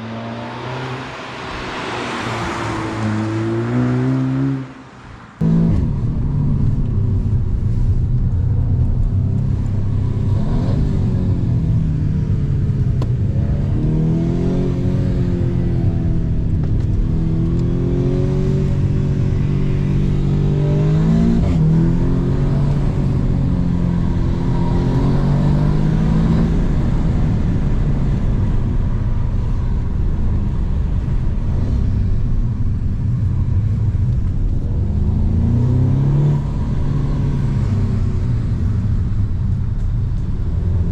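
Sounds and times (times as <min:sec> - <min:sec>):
car engine revving: 0:05.4 - 0:07.9, 0:09.0 - 0:28.3.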